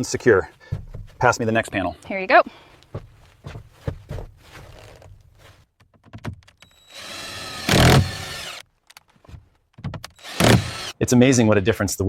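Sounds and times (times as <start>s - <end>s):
motor running: 6.7s - 8.6s, 10.2s - 10.9s.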